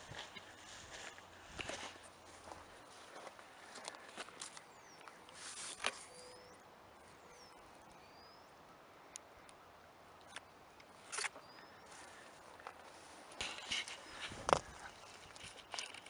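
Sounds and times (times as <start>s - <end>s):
rustling on grass: 0.0s - 6.4s, 11.0s - 16.0s
bird chirps: 4.4s - 8.6s, 11.1s - 12.3s.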